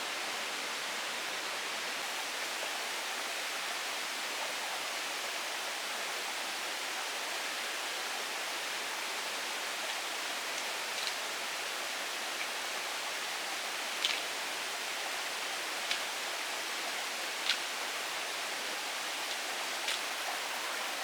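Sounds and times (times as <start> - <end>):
water rushing: 15.7 - 21.0.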